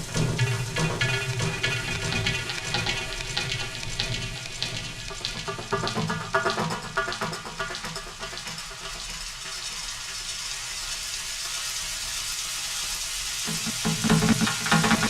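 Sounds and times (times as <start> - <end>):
music: 0.0 - 15.0
food sizzling in a pan: 8.4 - 15.0.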